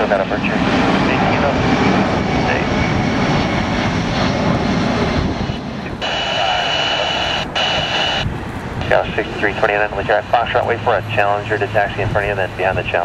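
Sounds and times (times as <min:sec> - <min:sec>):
jet engine rush: 0:00.0 - 0:13.0
radio scanner hiss and whistle: 0:06.0 - 0:08.3.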